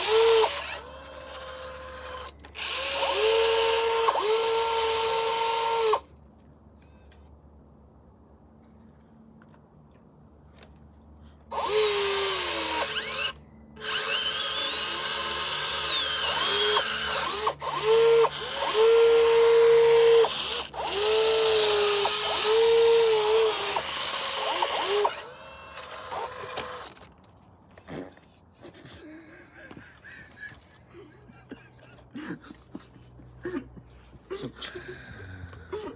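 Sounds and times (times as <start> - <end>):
electric motor whining: 0.0 - 6.0, 11.5 - 27.0.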